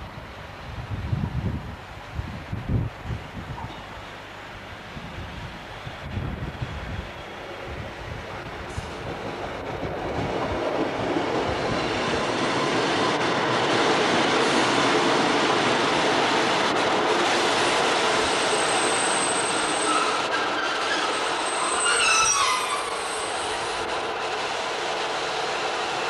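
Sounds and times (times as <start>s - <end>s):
train wheels and engine rumble: 0.0s - 26.0s
high squeal falling in pitch: 18.5s - 23.8s.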